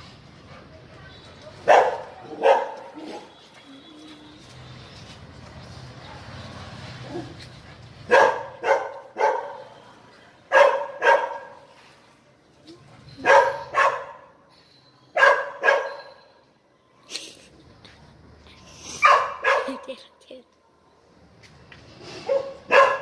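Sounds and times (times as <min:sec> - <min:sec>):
puppy barking: 0:01.6 - 0:03.2, 0:08.1 - 0:09.7, 0:10.5 - 0:11.6, 0:13.2 - 0:14.3, 0:15.2 - 0:16.1, 0:19.0 - 0:19.9, 0:22.2 - 0:23.0.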